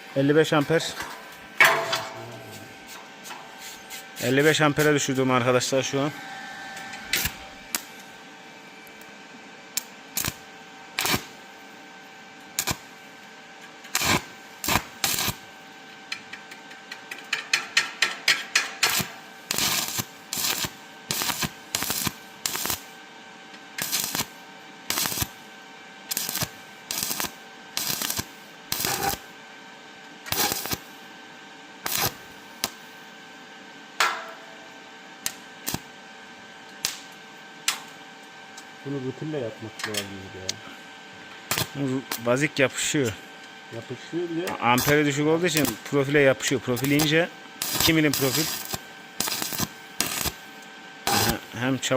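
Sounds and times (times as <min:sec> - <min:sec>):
welding arc crackling: 0:06.8 - 0:08.2, 0:09.8 - 0:11.5, 0:12.5 - 0:13.0, 0:13.8 - 0:15.5, 0:18.8 - 0:23.0, 0:23.8 - 0:25.4, 0:26.0 - 0:29.3, 0:30.3 - 0:31.0, 0:31.8 - 0:33.0, 0:35.3 - 0:35.9, 0:36.8 - 0:37.9, 0:41.5 - 0:42.4, 0:44.6 - 0:51.5.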